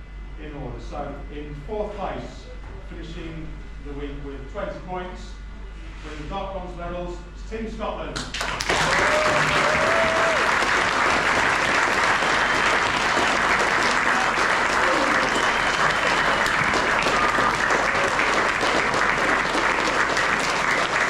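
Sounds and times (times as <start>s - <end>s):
crowd applauding: 8.3s - 21.0s
voices calling out: 12.0s - 18.4s.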